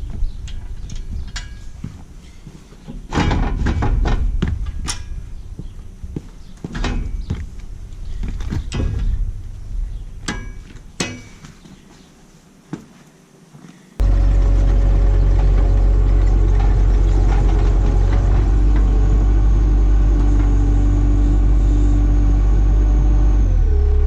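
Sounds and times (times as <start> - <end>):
low rumble: 7.0 - 11.0, 14.0 - 24.0.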